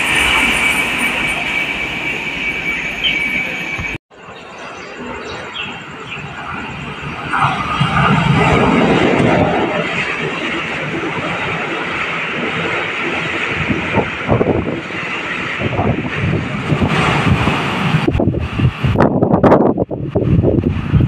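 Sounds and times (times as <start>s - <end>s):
passing train rumble: 0.0s - 21.0s
wind buffeting microphone: 5.0s - 21.0s.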